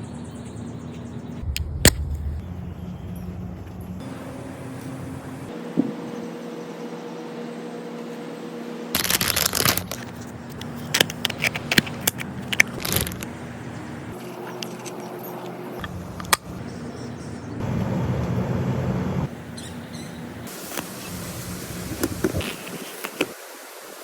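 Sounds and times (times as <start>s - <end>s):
low hum: 1.3s - 6.3s
material crunching and scraping: 9.0s - 13.3s.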